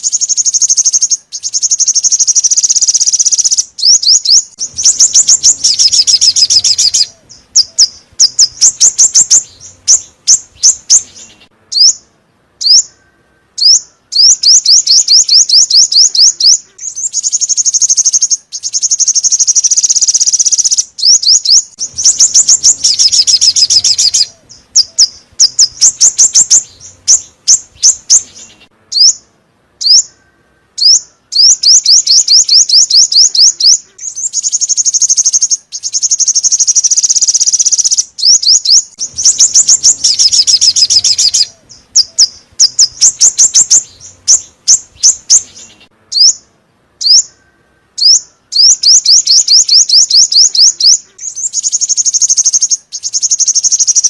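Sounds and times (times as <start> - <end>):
bird song with high trills: 0.0 - 54.0.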